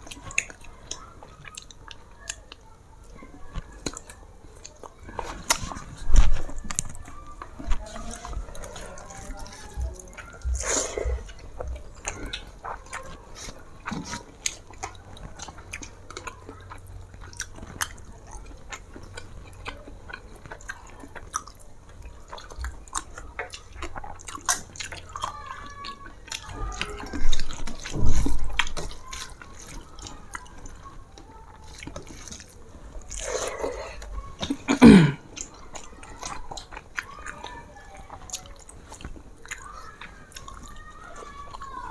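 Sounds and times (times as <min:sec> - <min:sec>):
wet chewing with mouth clicks: 0:00.0 - 0:41.9
bumps and rustles: 0:26.4 - 0:29.8.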